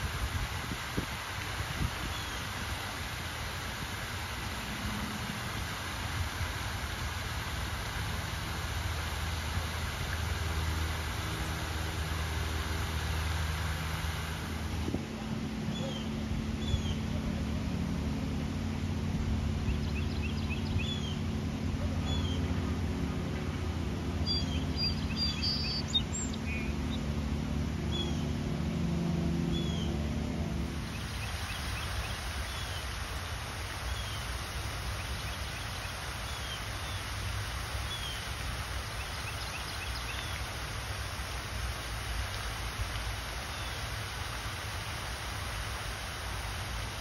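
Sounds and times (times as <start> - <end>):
faint hiss: 0.0 - 27.2, 30.5 - 47.0
small birds chirping: 24.2 - 26.7, 34.9 - 40.6.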